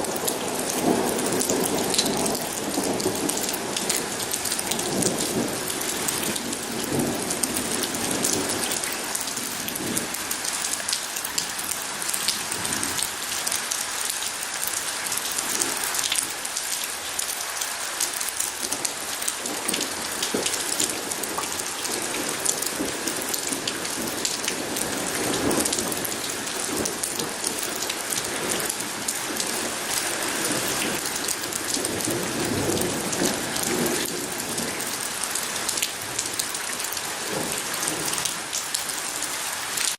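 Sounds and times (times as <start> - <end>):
thunder rumbling: 0.0 - 10.1
close raindrops ticking: 0.0 - 39.9
heavy rain pattering: 0.0 - 39.9.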